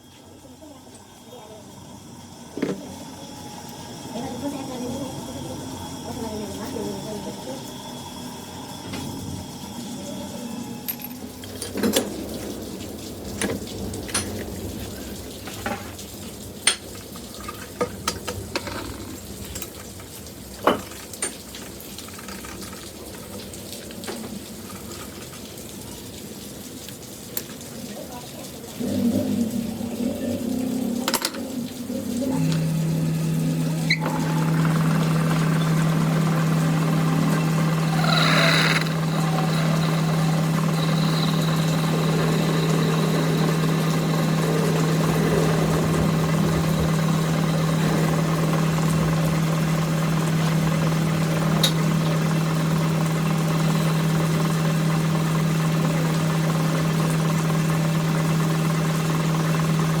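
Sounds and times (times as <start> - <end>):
machine motor humming: 0.8 - 15.8, 28.7 - 60.0.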